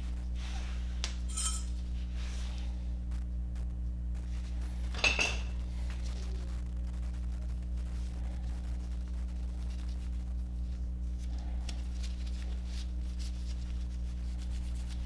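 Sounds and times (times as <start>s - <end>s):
low hum: 1.2s - 1.8s
sharp metallic clank: 1.3s - 1.7s
metal tools clinking: 1.3s - 1.8s.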